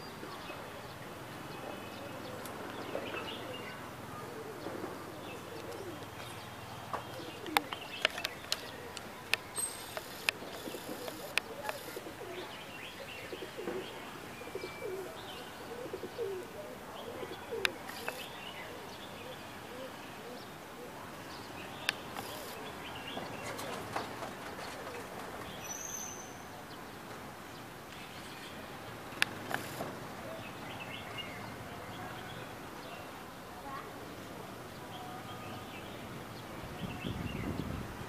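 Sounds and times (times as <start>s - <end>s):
flock of birds calling: 1.4s - 21.0s
sharp clicks: 7.4s - 12.0s, 29.1s - 29.9s.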